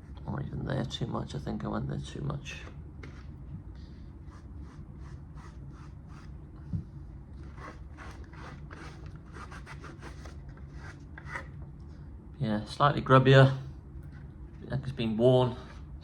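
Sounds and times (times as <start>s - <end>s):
rubbing on hard plastic: 7.4s - 11.5s.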